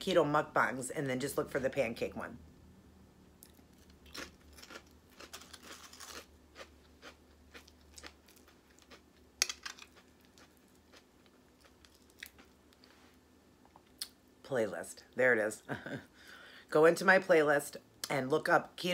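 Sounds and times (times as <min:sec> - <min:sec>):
person chewing crunchy chips: 0:03.4 - 0:12.9.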